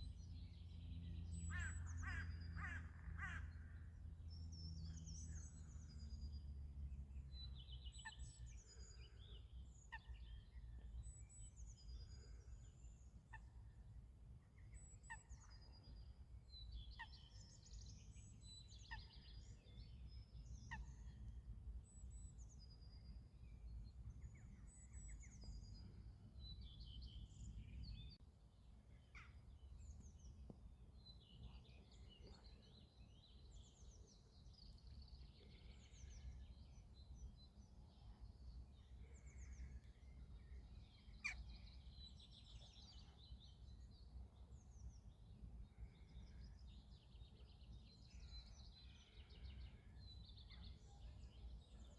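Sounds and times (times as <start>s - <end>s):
small birds chirping and singing: 29.0s - 51.9s.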